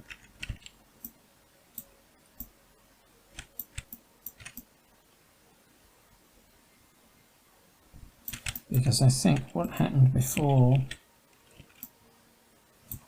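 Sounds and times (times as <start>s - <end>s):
mouse and keyboard clicks: 0.0s - 1.2s, 3.3s - 4.7s, 8.3s - 8.7s, 10.3s - 11.9s.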